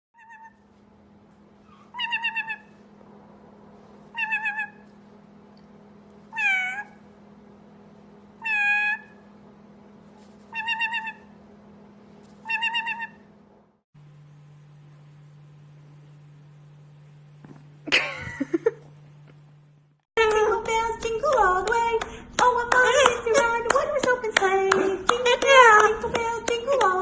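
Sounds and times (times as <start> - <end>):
parrot imitating cat meow: 0.2 - 0.6, 1.7 - 2.7, 4.1 - 4.8, 6.3 - 7.0, 8.4 - 9.2, 10.5 - 11.3, 12.4 - 13.3
low hum: 0.2 - 27.0.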